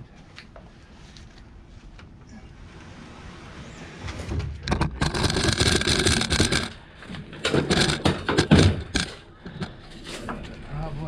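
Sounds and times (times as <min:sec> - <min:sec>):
generator scraping and clattering: 0:02.7 - 0:11.0.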